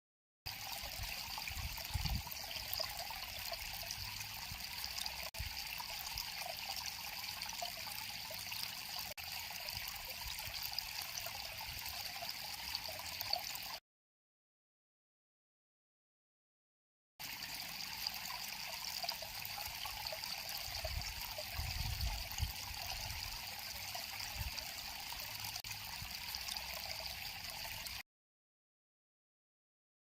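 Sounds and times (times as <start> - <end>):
river water flowing: 0.5 - 13.7, 17.2 - 21.7, 22.3 - 28.0.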